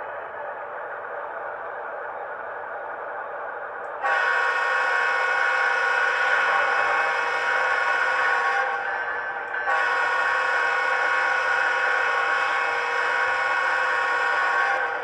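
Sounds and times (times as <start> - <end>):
diesel air-horn chord: 4.0 - 8.8, 9.7 - 14.9.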